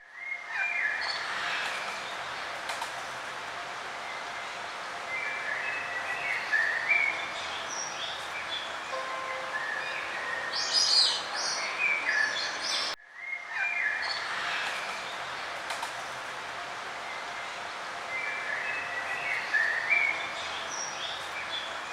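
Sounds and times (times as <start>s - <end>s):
steady background hiss: 0.1s - 21.9s
songbirds chirping: 0.2s - 21.9s.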